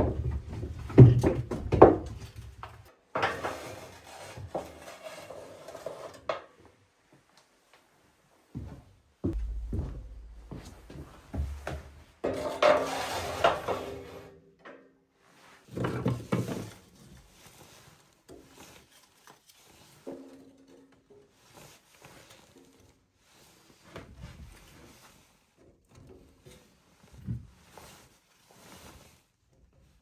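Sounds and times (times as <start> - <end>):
objects scraping and clattering: 3.1 - 6.5, 9.3 - 14.4.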